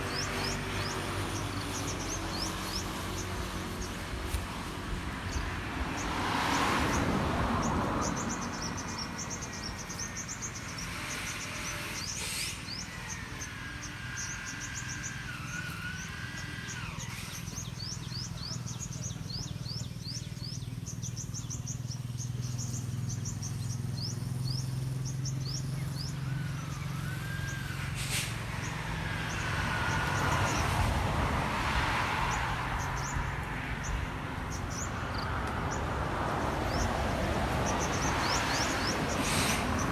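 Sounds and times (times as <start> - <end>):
low steady engine hum: 0.0 - 39.9
passing vehicle rushing: 0.0 - 39.9
small birds chirping: 0.0 - 39.9
lower whistled bird calls: 8.1 - 30.8.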